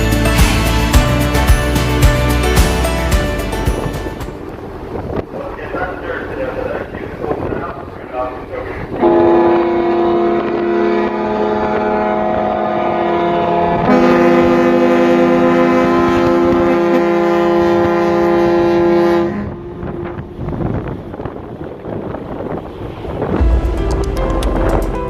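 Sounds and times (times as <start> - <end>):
water noise: 0.0 - 25.0
wind: 0.0 - 25.0
ship's horn blast: 7.8 - 21.0.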